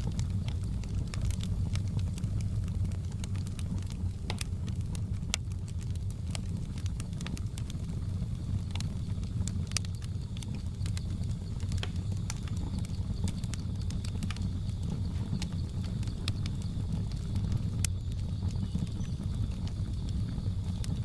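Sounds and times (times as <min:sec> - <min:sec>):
flames rumbling: 0:00.0 - 0:21.0
wood fire crackling: 0:00.0 - 0:21.0
insects droning: 0:06.1 - 0:21.0.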